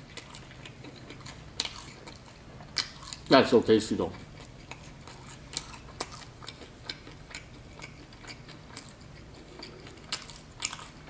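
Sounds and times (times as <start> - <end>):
wet chewing clicks and smacks: 0.0 - 3.4, 4.0 - 11.0.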